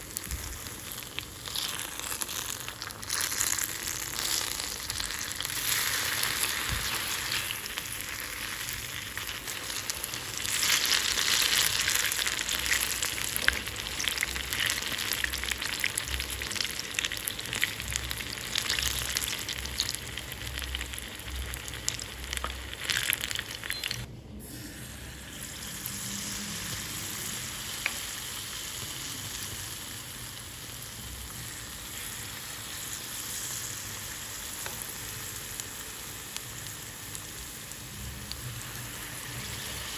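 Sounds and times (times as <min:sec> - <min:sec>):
food frying in hot oil: 0:00.0 - 0:39.9.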